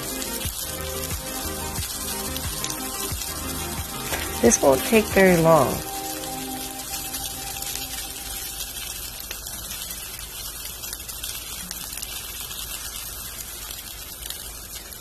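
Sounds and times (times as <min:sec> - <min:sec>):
fish sizzling in a skillet: 0:00.0 - 0:15.0.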